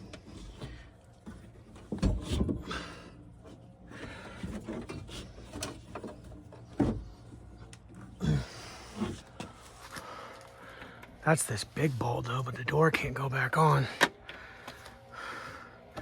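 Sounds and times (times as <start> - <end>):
knocks and clunks of parts: 0.0 - 2.9, 4.0 - 8.1.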